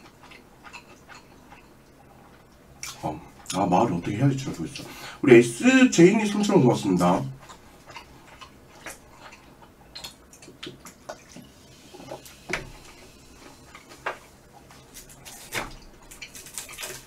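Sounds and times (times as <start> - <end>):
person chewing with mouth clicks: 0.0 - 3.6, 7.4 - 17.0.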